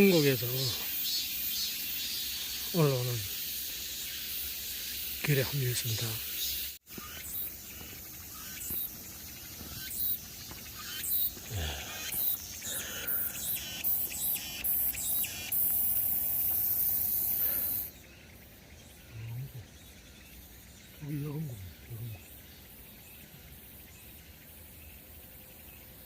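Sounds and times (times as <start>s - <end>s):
steady high hiss: 0.0s - 19.0s
footsteps crunching on dry leaves: 6.9s - 11.8s.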